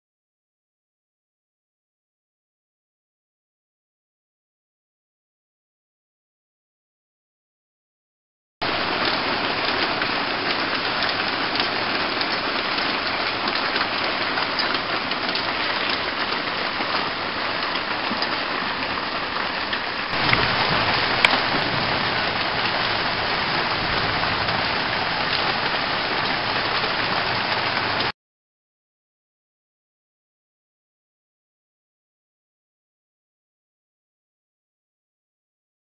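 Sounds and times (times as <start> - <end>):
steady rain falling: 8.6 - 28.1.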